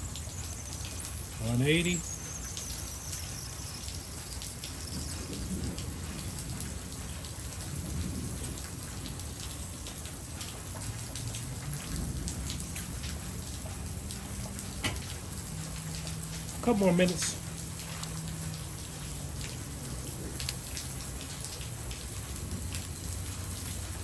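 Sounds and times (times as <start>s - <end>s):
steady rain falling: 0.0s - 24.0s
low rumble of thunder: 4.7s - 16.6s, 17.4s - 24.0s.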